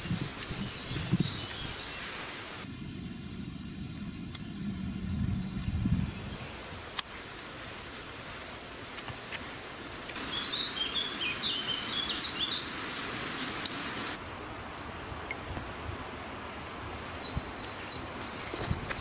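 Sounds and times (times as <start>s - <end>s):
songbird chirping: 0.0s - 7.2s, 10.1s - 19.0s
steady hiss: 0.0s - 19.0s.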